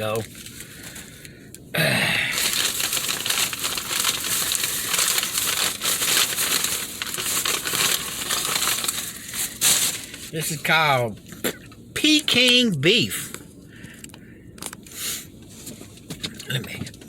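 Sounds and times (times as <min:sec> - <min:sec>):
packaging crinkling and rustling: 0:00.0 - 0:01.3, 0:02.3 - 0:10.4.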